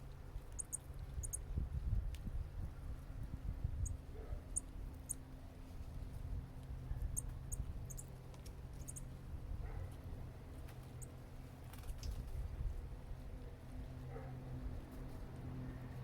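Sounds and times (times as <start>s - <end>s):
small birds chipping: 0.0s - 1.6s, 3.8s - 12.4s
low steady rumble: 0.0s - 16.0s.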